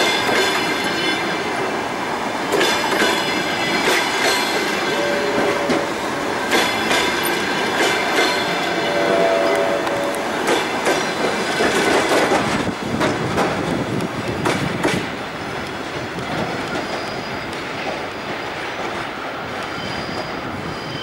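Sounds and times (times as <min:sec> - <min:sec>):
train rumble: 0:00.0 - 0:21.0
train wheels clacking over track: 0:00.0 - 0:21.0
high wheel squeal: 0:02.8 - 0:10.3, 0:19.6 - 0:21.0.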